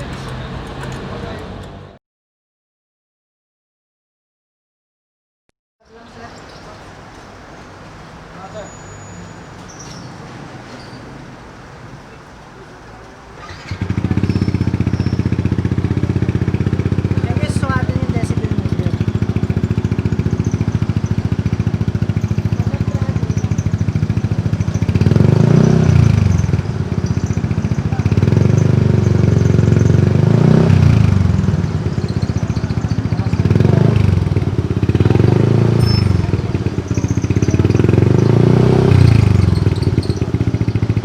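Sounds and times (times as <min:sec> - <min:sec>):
scooter engine idling and revving: 0:00.0 - 0:02.0, 0:13.3 - 0:41.0.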